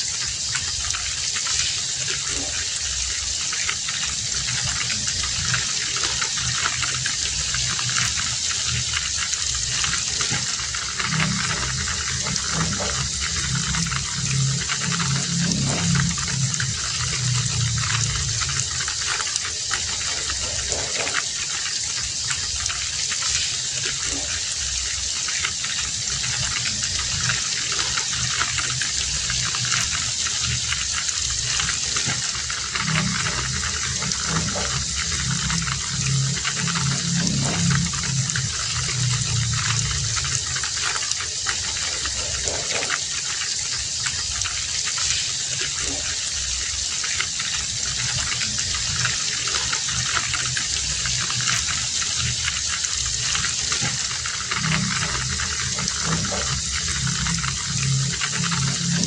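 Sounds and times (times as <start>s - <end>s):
heavy rain falling: 0.0s - 59.0s
low rumbling: 4.2s - 21.2s, 26.1s - 42.8s, 47.9s - 59.0s.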